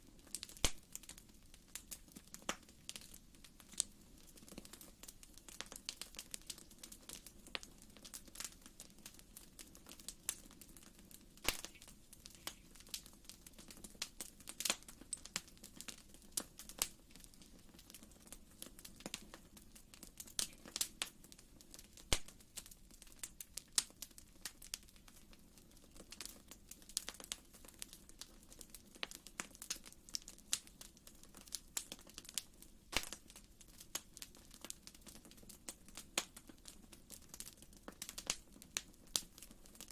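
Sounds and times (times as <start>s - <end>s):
wood fire crackling: 0.0s - 39.9s
sharp fire pop: 11.4s - 12.6s, 32.9s - 33.2s.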